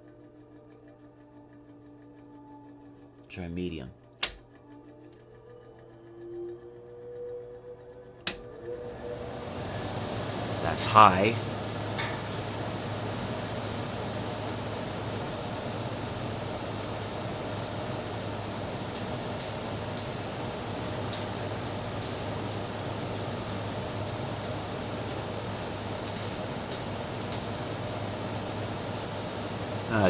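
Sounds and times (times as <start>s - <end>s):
faint ticks: 0.0s - 3.3s, 9.6s - 29.6s
air conditioner fan running: 0.0s - 30.0s.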